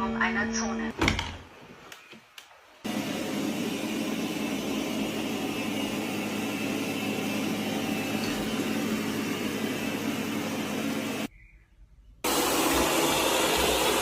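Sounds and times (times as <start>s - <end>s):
robot vacuum cleaner whirring: 2.9s - 11.3s, 12.3s - 14.0s.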